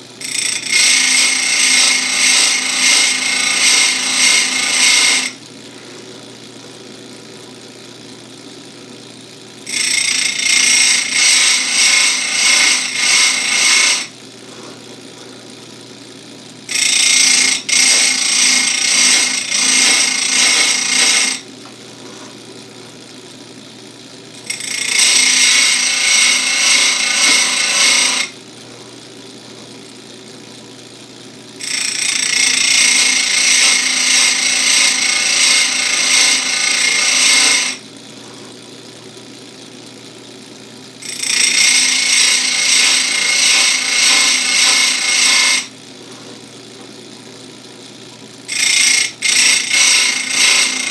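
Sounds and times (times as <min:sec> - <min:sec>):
grinder motor running: 0:00.0 - 0:50.9
grinding wheel on chain cutters: 0:00.2 - 0:05.4, 0:09.6 - 0:14.8, 0:16.6 - 0:22.3, 0:24.3 - 0:28.4, 0:31.5 - 0:37.9, 0:41.0 - 0:45.8, 0:48.4 - 0:50.9.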